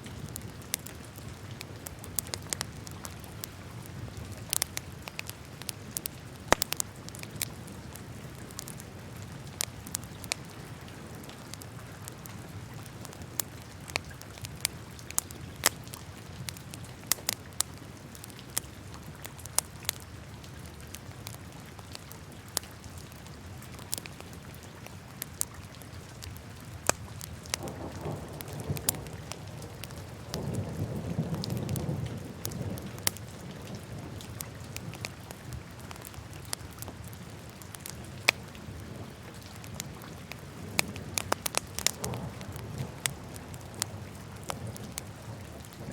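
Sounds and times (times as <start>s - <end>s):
fire crackling and popping: 0.0s - 45.9s
low rush of flames: 39.6s - 45.9s.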